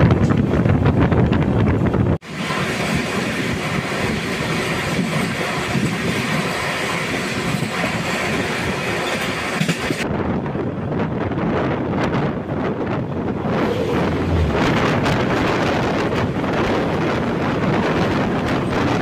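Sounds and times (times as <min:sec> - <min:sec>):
wind buffeting microphone: 0:00.0 - 0:02.2, 0:07.2 - 0:19.0
train running on rails: 0:00.0 - 0:19.0.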